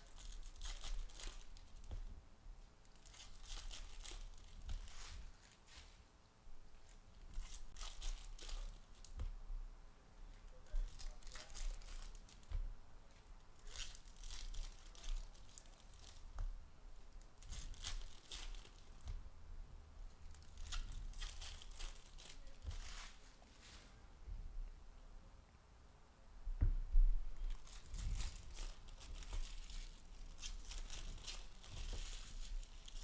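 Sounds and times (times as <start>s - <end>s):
card wrappers tearing and crinkling: 0.0s - 2.0s, 2.9s - 5.6s, 7.3s - 9.1s, 10.6s - 12.5s, 13.6s - 16.4s, 17.4s - 19.1s, 20.3s - 23.2s, 27.4s - 33.0s.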